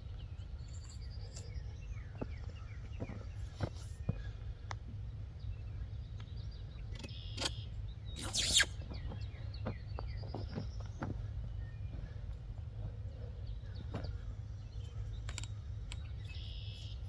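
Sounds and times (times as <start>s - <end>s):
birds chirping: 0.0s - 17.0s
steady low rumble: 7.7s - 17.0s
loud hissing scrape: 8.2s - 8.8s.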